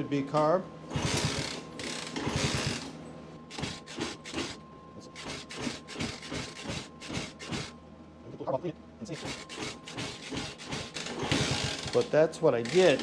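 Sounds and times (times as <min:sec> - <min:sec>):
small engine sputtering and popping: 0:09.2 - 0:12.1.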